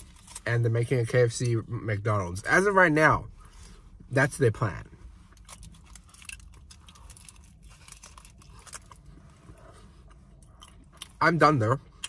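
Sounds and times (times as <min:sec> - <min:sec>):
man chewing with mouth closed: 0:05.6 - 0:11.2.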